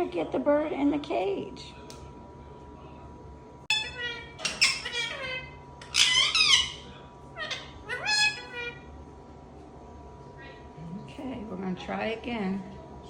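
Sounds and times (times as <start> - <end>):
parrot high-pitched calls: 3.7 - 8.9.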